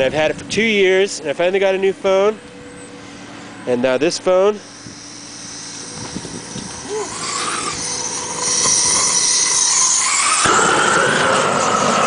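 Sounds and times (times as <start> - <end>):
flamethrower flame hissing: 4.6 - 12.0.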